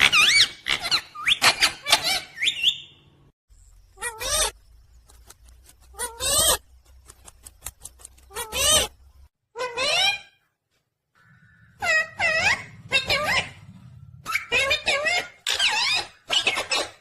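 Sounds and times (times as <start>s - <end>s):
parrot squawking calls: 0.0s - 2.9s, 11.2s - 17.0s.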